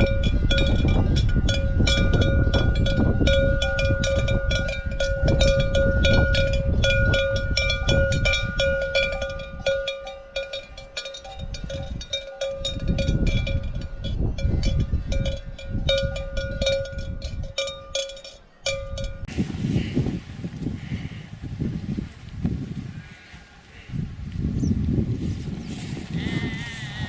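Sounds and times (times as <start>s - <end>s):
cowbells clanking: 0.0s - 19.3s.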